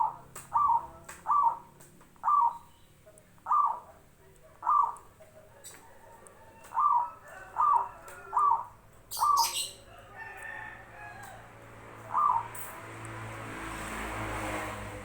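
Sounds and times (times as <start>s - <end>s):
dove cooing: 0.0s - 2.6s, 3.4s - 4.0s, 4.6s - 5.1s, 6.4s - 9.8s, 12.0s - 12.6s.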